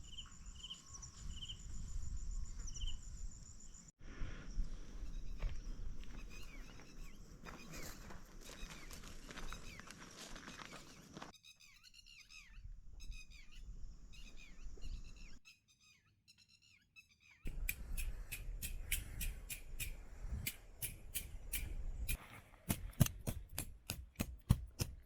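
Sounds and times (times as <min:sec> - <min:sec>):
wild birds singing: 0:00.0 - 0:03.9, 0:04.6 - 0:22.2
sharp clicks and snaps: 0:17.5 - 0:22.2.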